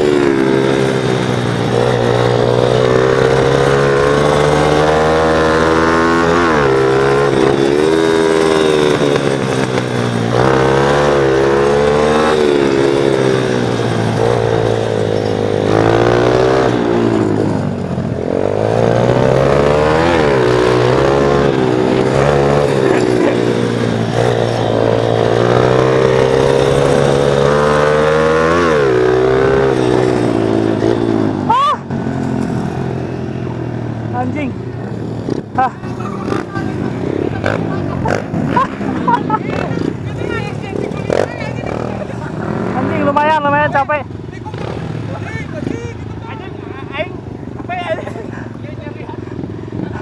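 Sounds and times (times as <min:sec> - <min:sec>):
small motorbike engine revving: 0:00.0 - 0:46.2.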